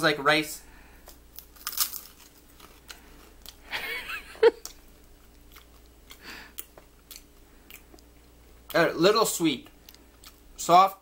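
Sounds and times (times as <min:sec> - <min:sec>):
chewing crunchy snack: 0:01.0 - 0:03.7, 0:04.6 - 0:08.9, 0:09.6 - 0:10.5.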